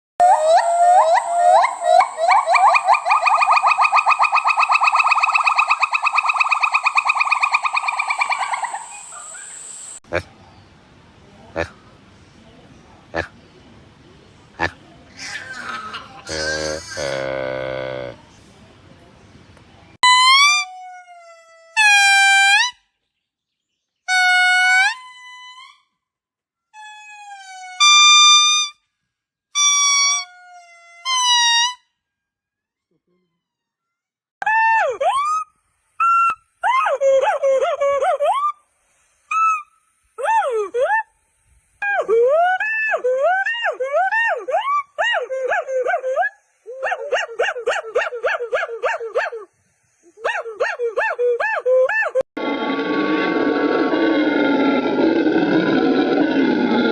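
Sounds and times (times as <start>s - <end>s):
primate whooping call: 0.2s - 10.0s.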